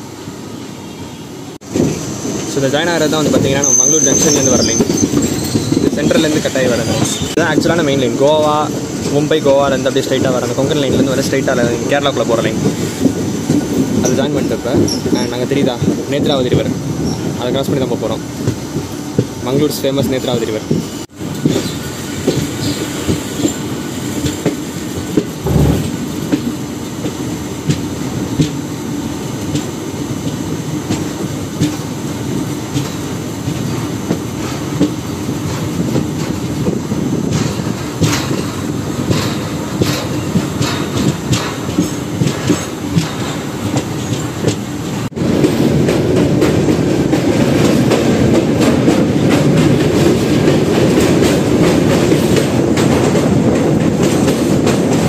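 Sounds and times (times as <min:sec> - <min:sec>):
train wheels rumbling on track: 0:00.0 - 0:55.0
wheel squeal: 0:03.4 - 0:07.3
rail joint clicking: 0:21.3 - 0:55.0.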